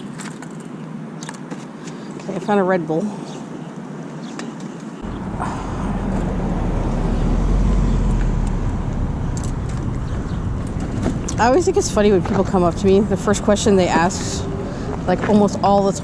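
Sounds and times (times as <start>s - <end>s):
street noise: 0.0s - 16.0s
vehicle passing: 5.0s - 16.0s.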